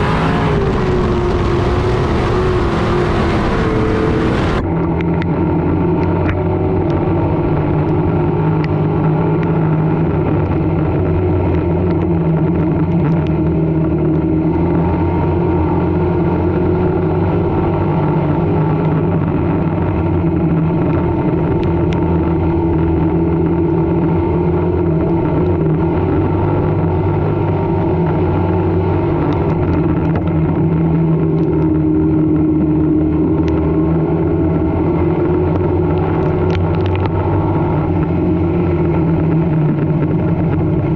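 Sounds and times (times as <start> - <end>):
race car engine running: 0.0 - 40.9.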